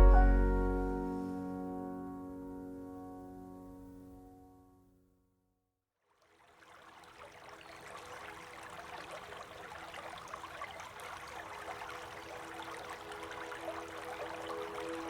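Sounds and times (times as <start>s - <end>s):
faint sustained musical notes: 0.0s - 4.8s, 12.0s - 15.0s
running water rushing: 6.2s - 15.0s.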